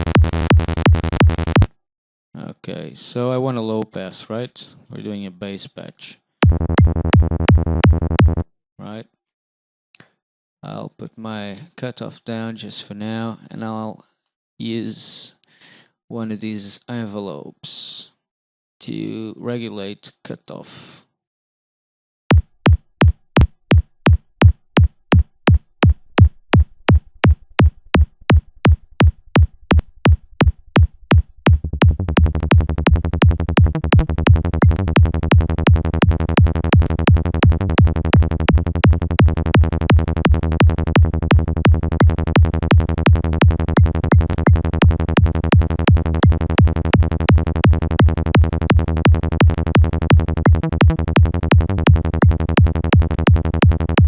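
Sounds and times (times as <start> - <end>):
electronic kick drum: 0.0 - 1.8, 6.4 - 8.4, 22.3 - 54.0
synth bass: 0.0 - 1.8, 6.4 - 8.5, 26.6 - 54.0.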